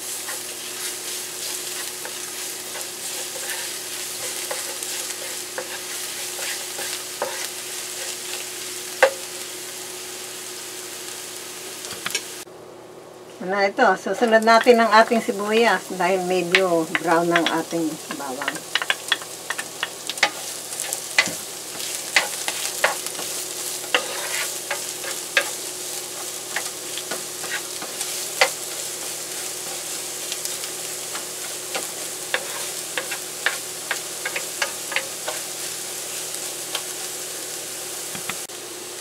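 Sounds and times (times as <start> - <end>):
wooden spatula scraping a pan: 0.0 - 8.4, 16.5 - 35.8
onion and garlic sizzling in oil: 0.0 - 12.5, 13.4 - 39.0.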